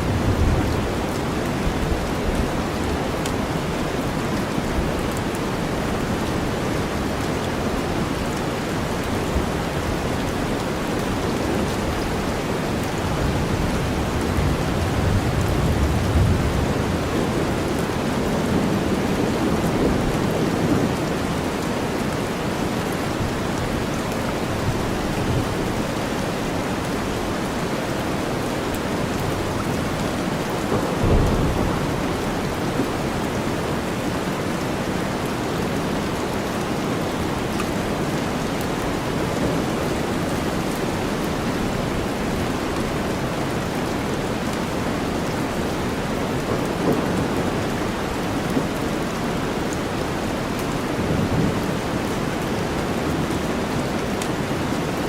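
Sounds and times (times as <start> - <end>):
thunder rumbling: 0.0 - 5.0, 11.0 - 22.0, 29.0 - 36.3, 45.5 - 54.1
heavy rain: 0.0 - 55.0.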